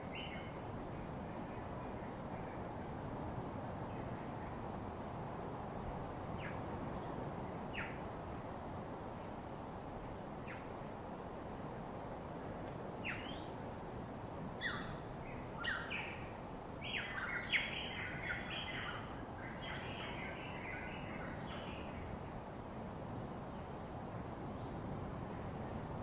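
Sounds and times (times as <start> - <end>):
tropical birds chirping: 0.0 - 0.6, 13.0 - 13.8, 14.6 - 22.2
background hiss: 0.0 - 26.0.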